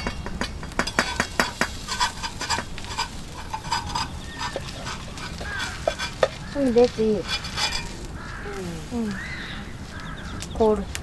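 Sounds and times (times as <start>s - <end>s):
metal utensils clinking on dishes: 0.0s - 8.1s.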